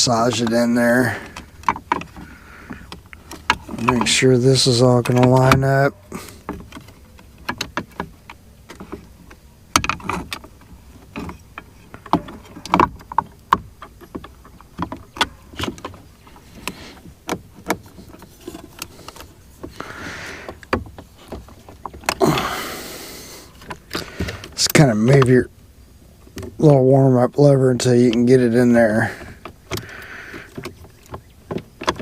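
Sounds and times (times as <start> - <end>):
plastic and metal parts clicking: 5.0 - 5.7, 28.9 - 32.0.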